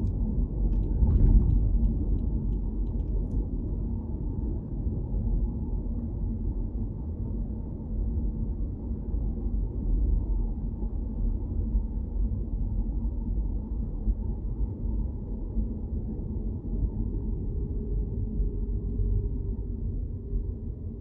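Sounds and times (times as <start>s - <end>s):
muffled car driving rumble: 0.0s - 4.8s.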